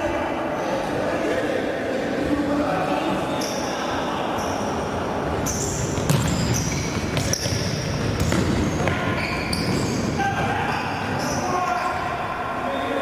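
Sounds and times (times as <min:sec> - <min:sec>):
echoing hall background: 0:00.0 - 0:13.0
shoes squeaking on hall floor: 0:03.1 - 0:13.0.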